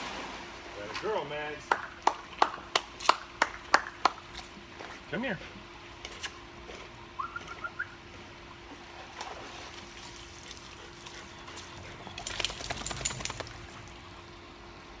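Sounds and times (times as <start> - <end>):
water splashing and trickling: 8.8 - 14.4.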